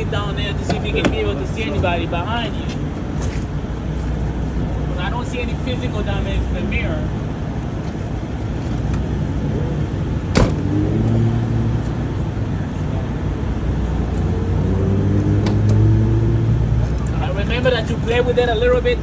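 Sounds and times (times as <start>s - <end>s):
truck engine low rumble: 0.0s - 19.0s
rising engine tone: 10.5s - 12.2s, 14.2s - 16.9s.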